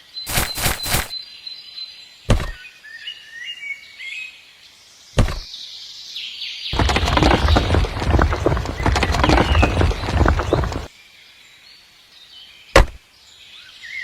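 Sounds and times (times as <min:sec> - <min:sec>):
faint bird chirps: 0:00.0 - 0:06.4
dull knocks: 0:06.8 - 0:10.9.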